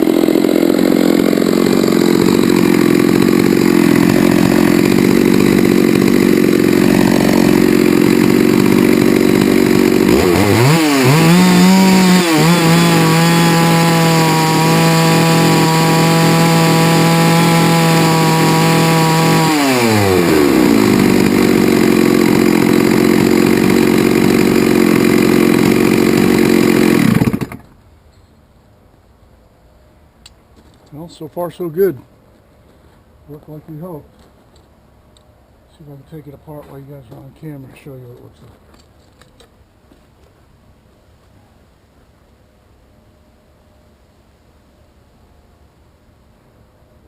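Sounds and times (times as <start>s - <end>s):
chainsaw cutting log: 0.0s - 27.8s.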